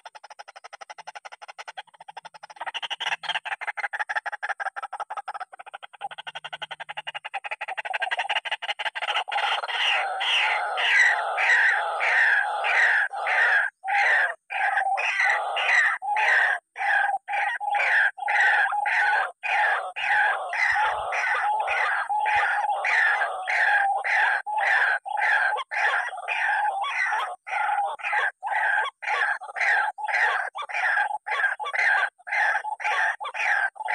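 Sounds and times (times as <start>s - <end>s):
waterhen calling: 2.1s - 33.9s.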